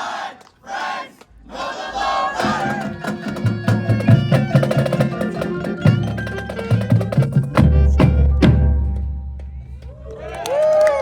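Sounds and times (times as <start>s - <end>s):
marching band playing: 2.2s - 9.9s
heavy drum hits: 7.2s - 9.6s.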